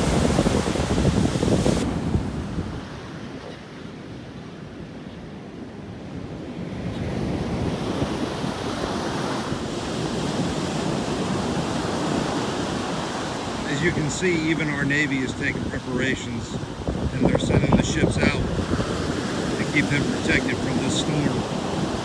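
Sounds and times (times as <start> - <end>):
wind on microphone: 0.0 - 3.6, 6.2 - 14.0, 15.4 - 22.0
surf breaking on beach: 0.0 - 3.8, 6.3 - 22.0.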